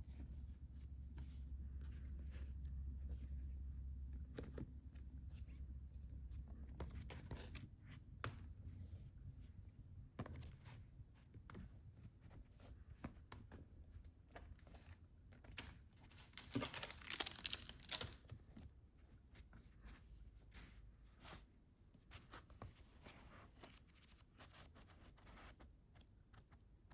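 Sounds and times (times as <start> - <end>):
plastic and paper crinkling: 15.4 - 18.6.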